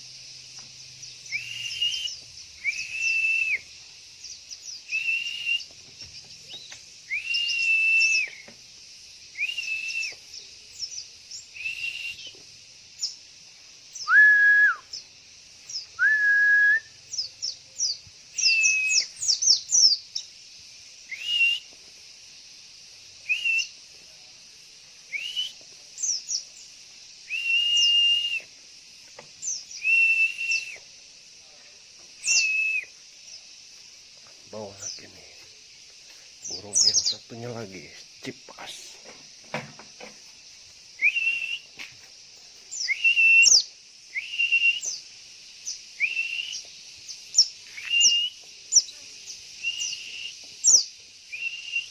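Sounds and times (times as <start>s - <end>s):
songbird whistled note: 1.2s - 3.7s, 4.9s - 5.7s, 7.1s - 8.5s, 9.4s - 10.2s, 11.5s - 12.4s, 14.0s - 15.0s, 16.0s - 17.3s, 18.4s - 19.6s, 21.1s - 21.7s, 23.2s - 23.8s, 25.1s - 26.2s, 27.2s - 28.5s, 29.4s - 30.9s, 32.2s - 32.9s, 41.0s - 41.9s, 42.8s - 45.0s, 46.0s - 46.7s, 47.4s - 48.4s, 49.6s - 51.9s.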